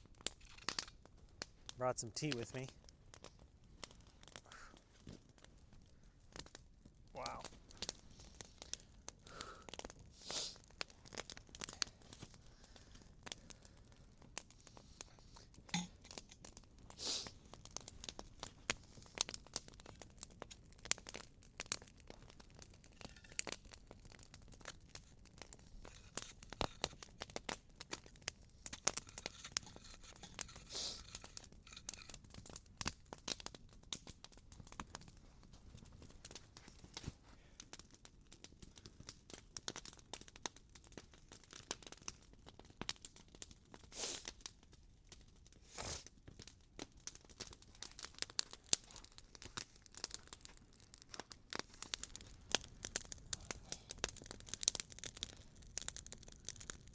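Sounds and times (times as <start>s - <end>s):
campfire crackling: 0.0s - 56.9s
fire hissing rushes: 8.1s - 11.0s, 16.9s - 17.5s, 28.9s - 31.3s, 43.9s - 44.3s, 53.3s - 54.0s.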